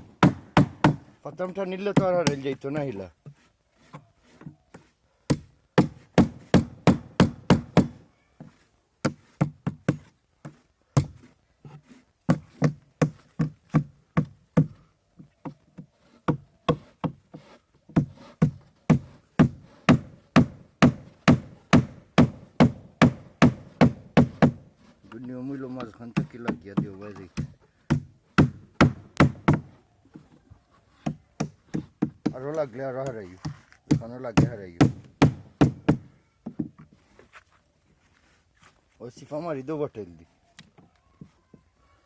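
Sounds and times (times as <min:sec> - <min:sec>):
hammer knocking on wood: 0:00.2 - 0:01.1, 0:05.3 - 0:08.0, 0:17.9 - 0:24.6, 0:25.8 - 0:29.7, 0:33.4 - 0:36.8.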